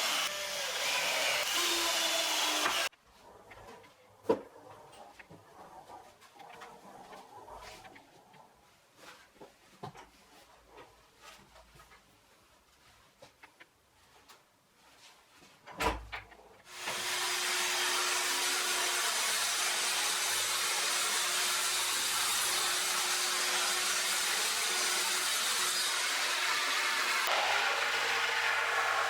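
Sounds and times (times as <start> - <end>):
electric power tool running: 0.0 - 2.9, 16.7 - 29.0.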